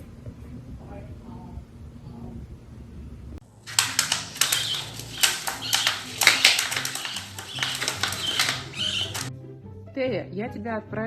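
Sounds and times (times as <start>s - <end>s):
bird clicks and high chirps: 3.7s - 9.3s.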